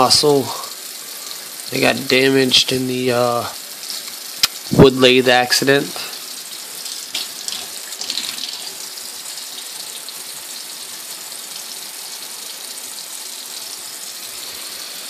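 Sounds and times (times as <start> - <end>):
tap water running into sink: 3.3 - 15.0.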